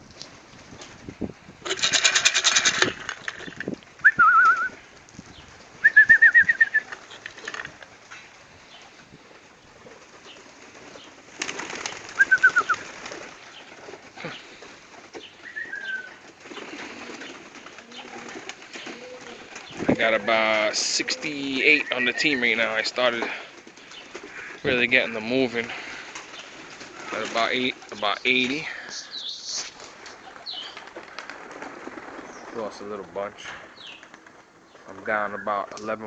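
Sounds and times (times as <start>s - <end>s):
pigeon wings flapping: 0.0s - 35.0s
pigeons chirping: 0.0s - 36.0s.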